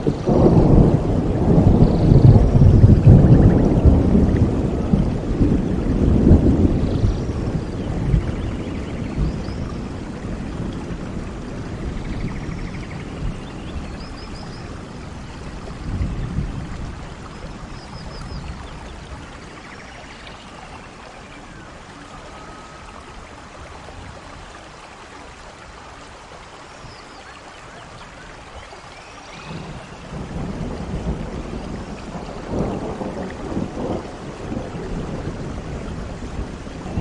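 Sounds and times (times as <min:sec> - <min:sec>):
rain falling on foliage: 0:00.0 - 0:37.0
faint bird calls: 0:17.7 - 0:23.5.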